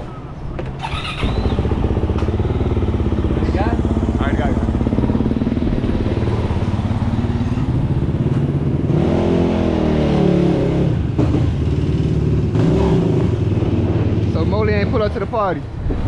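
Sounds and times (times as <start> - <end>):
engine revving: 0.8 - 15.1
motorcycle engine idling: 0.9 - 8.8.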